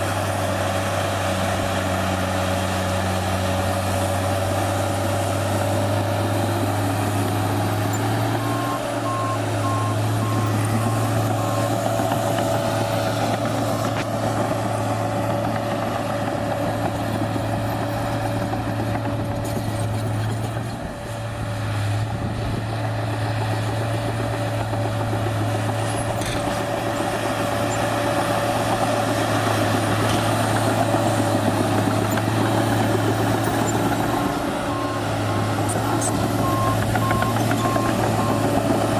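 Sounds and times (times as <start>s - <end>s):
diesel engine running: 0.0s - 38.9s
reversing alarm beeping: 7.8s - 12.2s, 36.0s - 38.6s.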